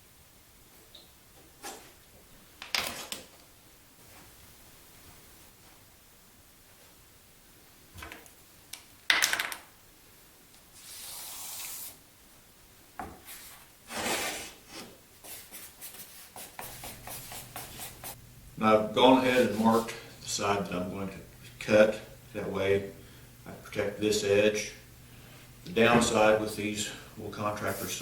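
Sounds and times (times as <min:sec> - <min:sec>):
faint steady hiss: 0:00.0 - 0:28.0
quick scratching strokes: 0:10.8 - 0:12.0, 0:13.3 - 0:18.2.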